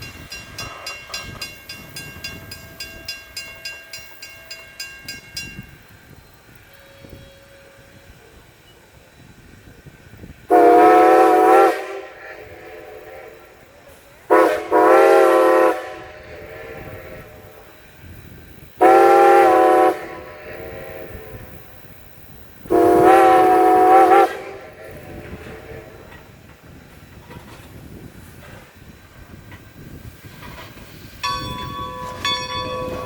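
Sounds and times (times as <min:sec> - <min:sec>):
steam locomotive whistle blasts: 0:06.7 - 0:08.4, 0:10.5 - 0:17.7, 0:18.8 - 0:21.7, 0:22.6 - 0:26.2.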